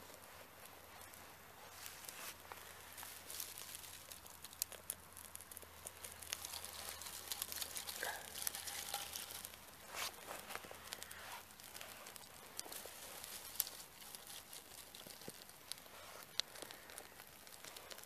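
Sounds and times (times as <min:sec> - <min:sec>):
campfire kindling crackling: 0:00.0 - 0:18.0.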